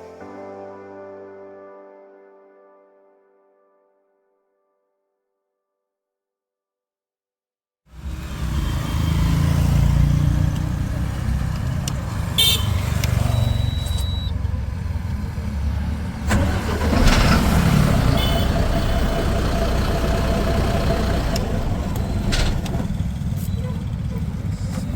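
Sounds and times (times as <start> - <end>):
truck diesel engine running: 8.0 - 24.9.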